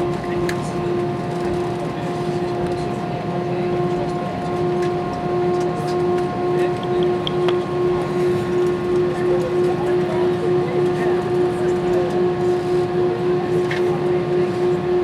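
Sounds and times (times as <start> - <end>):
aircraft engines humming: 0.0 - 15.0.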